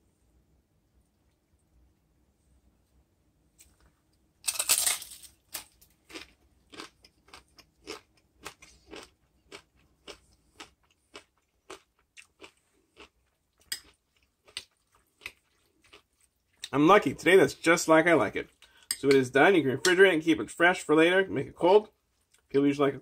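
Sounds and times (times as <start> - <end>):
person crunching chip: 4.4 - 16.1
chewing crunches: 4.4 - 16.8.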